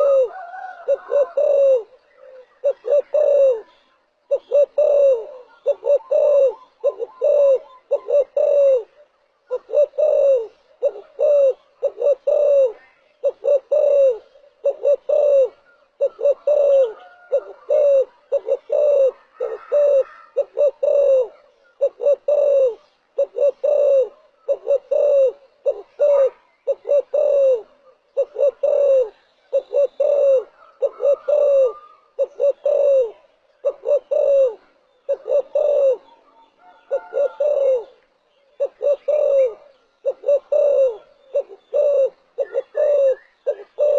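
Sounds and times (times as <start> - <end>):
dove cooing: 0.0 - 43.9.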